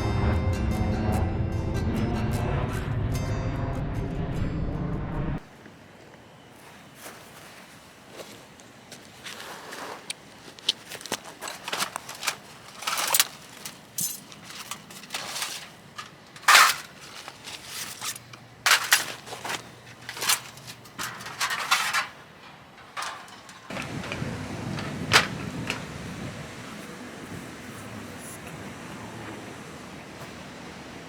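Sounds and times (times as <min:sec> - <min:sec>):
rustles scrapes and knocks: 0:09.0 - 0:25.9.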